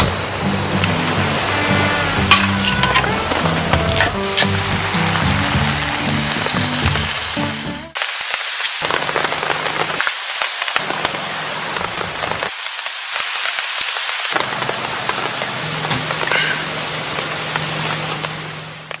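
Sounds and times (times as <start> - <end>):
rain hiss: 0.0 - 19.0
raindrop taps: 8.3 - 19.0.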